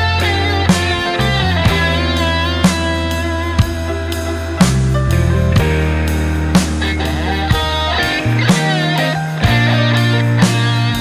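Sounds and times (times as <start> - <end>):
bass: 0.0 - 11.0
electric guitar: 0.0 - 11.0
drum hits: 4.6 - 11.0.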